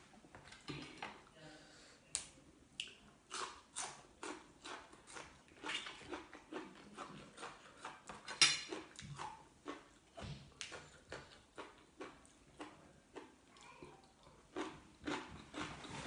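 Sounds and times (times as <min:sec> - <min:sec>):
person chewing crunchy food: 0:03.3 - 0:16.0.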